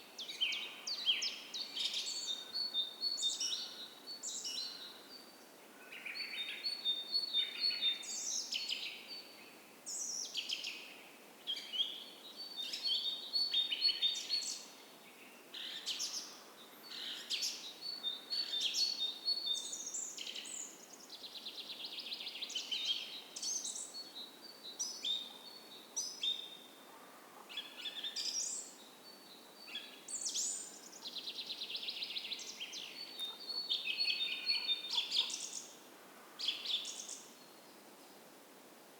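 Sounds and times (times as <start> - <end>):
songbirds singing: 27.5 - 37.9.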